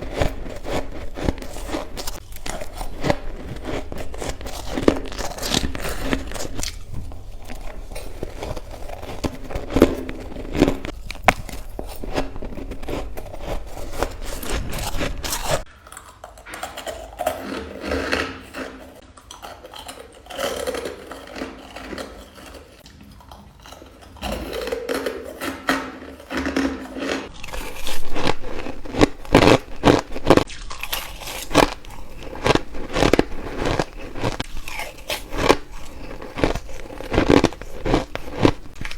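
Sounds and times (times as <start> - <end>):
person crunching ice: 0.0 - 15.7, 26.0 - 38.9.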